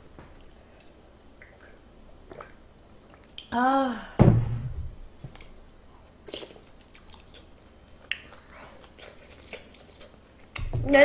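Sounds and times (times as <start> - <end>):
wet mouth clicks and smacks: 0.4 - 3.5, 6.3 - 10.7
heavy low thump: 4.1 - 5.0
person chewing food: 5.3 - 10.6.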